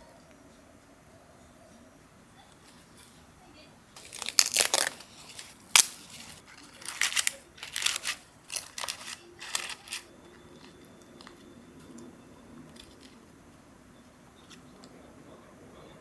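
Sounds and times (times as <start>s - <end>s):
faint low hum: 0.0s - 16.0s
crinkling and rustling: 4.0s - 12.1s.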